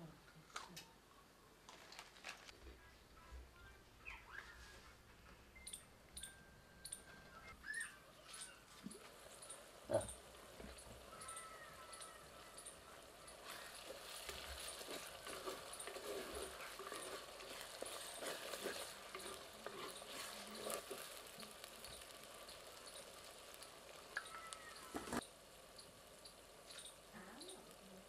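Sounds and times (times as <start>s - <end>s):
onions sizzling in oil: 5.6s - 28.0s
wooden spatula scraping pot: 8.4s - 24.2s, 24.8s - 25.2s.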